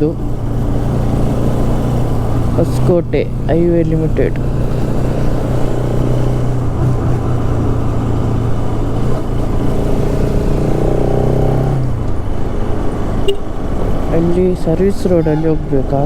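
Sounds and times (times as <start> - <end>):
motorcycle engine cruising: 0.0 - 16.0
road noise: 0.0 - 16.0.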